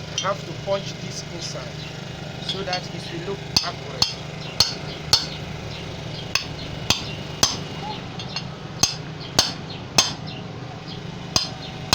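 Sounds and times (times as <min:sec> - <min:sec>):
steady low hum: 0:00.0 - 0:11.9
hammer striking metal: 0:03.5 - 0:05.5, 0:06.3 - 0:10.3, 0:11.3 - 0:11.9.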